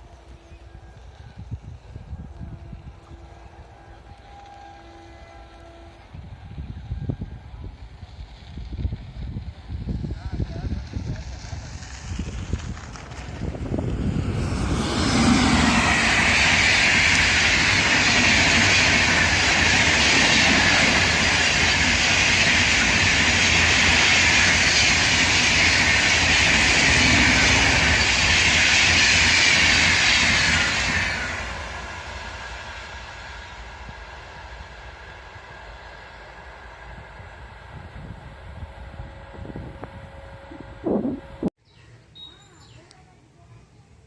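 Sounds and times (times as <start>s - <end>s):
train passing at high speed: 0.0s - 41.6s.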